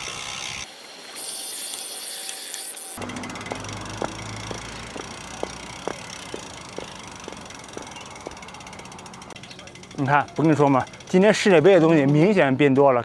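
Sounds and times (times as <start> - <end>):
bicycle clicking: 0.0 - 12.3
outdoor background rumble: 3.0 - 10.0
footsteps walking: 3.5 - 8.6.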